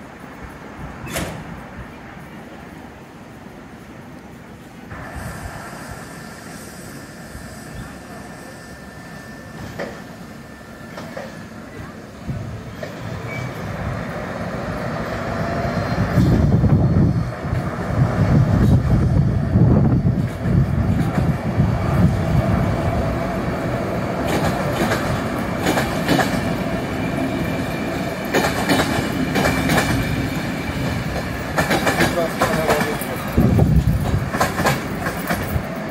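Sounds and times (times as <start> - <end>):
train coaches rumbling: 0.0 - 35.9
wheels clacking over rail joints: 24.1 - 35.9.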